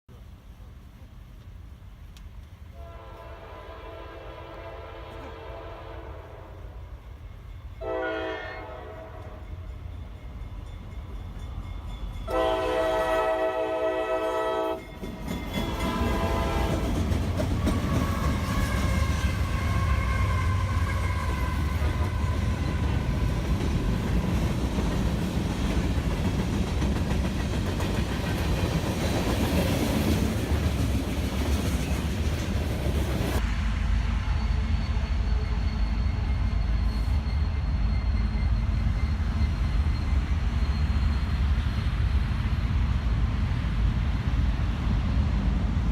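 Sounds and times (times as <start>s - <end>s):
train rumbling on rails: 0.1s - 45.9s
freight train horn: 2.7s - 7.1s, 7.8s - 9.7s, 12.3s - 14.9s, 15.6s - 23.3s.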